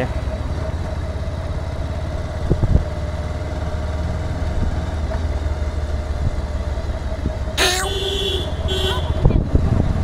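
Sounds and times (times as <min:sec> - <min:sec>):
motorcycle engine idling: 0:00.0 - 0:03.4.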